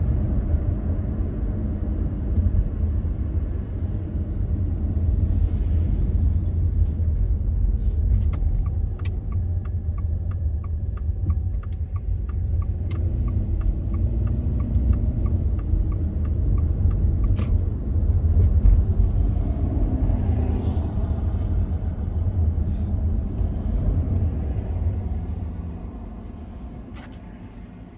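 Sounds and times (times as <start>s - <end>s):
car road and engine rumble: 0.0s - 27.9s
turn signal ticking: 8.2s - 17.8s.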